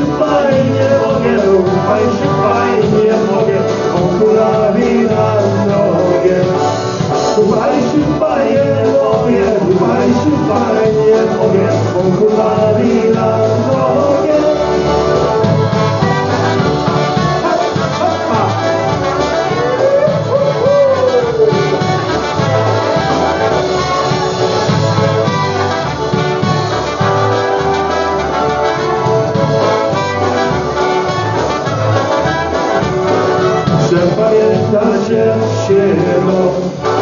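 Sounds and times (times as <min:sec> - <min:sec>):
polka band with brass playing: 0:00.0 - 0:37.0.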